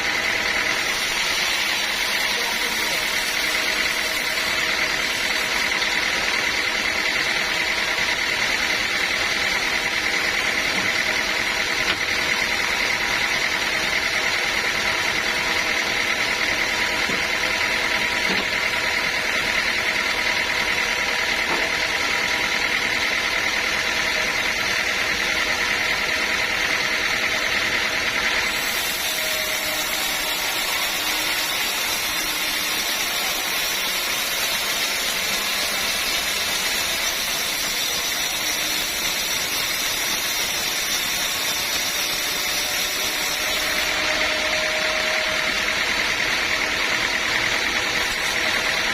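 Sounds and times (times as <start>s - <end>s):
high machine whine: 0.0s - 48.9s
sawmill machinery running: 0.0s - 48.9s.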